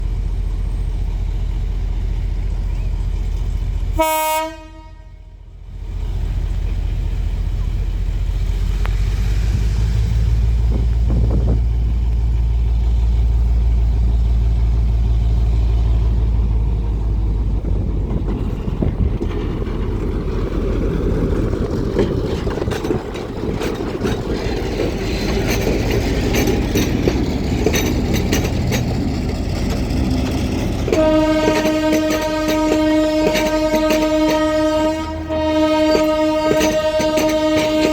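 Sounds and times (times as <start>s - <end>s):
diesel locomotive rumbling: 0.0s - 37.9s
train wheels clicking and squealing: 0.1s - 4.0s, 6.0s - 37.9s
locomotive horn chord: 4.0s - 5.4s, 30.9s - 37.9s.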